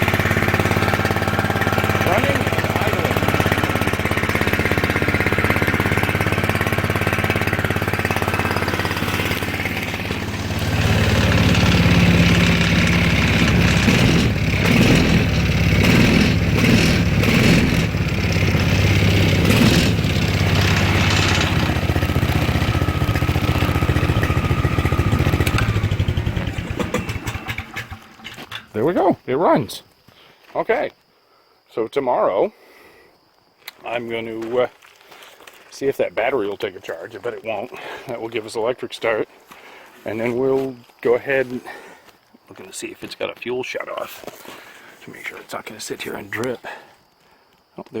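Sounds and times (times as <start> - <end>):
small go-kart engine running: 0.0 - 28.7.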